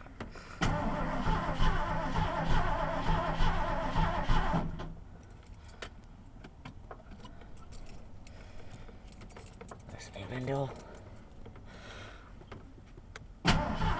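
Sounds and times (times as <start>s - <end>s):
engine cranking by starter: 0.6s - 5.0s, 13.4s - 13.9s.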